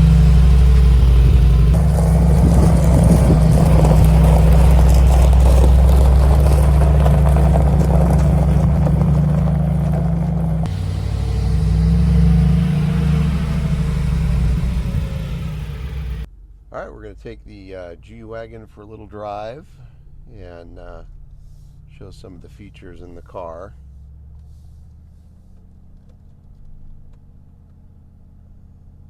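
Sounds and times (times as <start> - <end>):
deep car engine and exhaust: 0.0 - 29.0.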